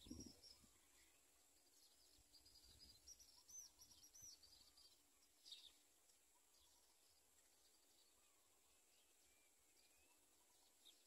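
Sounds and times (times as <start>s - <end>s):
faint bird twittering: 0.0s - 11.0s.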